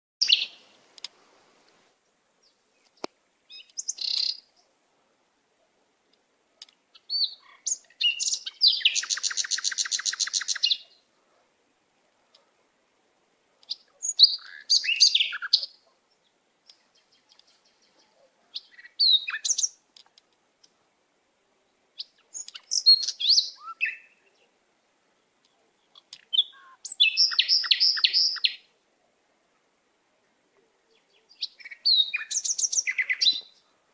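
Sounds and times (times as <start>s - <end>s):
birds chirping: 0.2s - 0.9s, 1.9s - 4.8s, 6.6s - 11.5s, 13.6s - 20.8s, 21.6s - 33.9s
bird trill: 3.5s - 4.5s, 6.9s - 11.0s, 13.7s - 15.8s, 18.6s - 19.8s, 22.0s - 24.3s, 25.9s - 28.7s, 31.0s - 33.6s.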